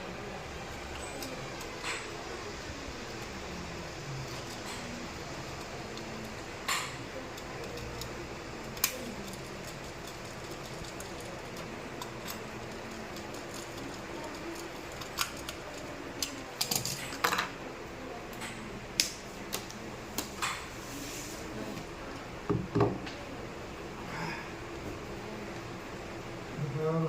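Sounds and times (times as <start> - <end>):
small hard objects clicking: 5.8 - 17.4.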